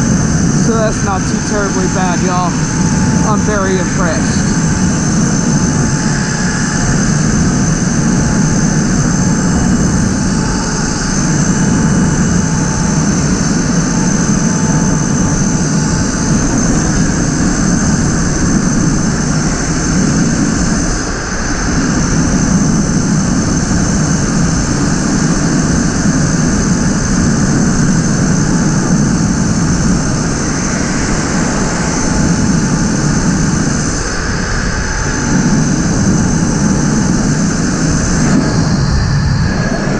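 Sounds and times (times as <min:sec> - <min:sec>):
electric motor high whine: 0:00.0 - 0:39.9
wind rushing over microphone: 0:00.0 - 0:39.9.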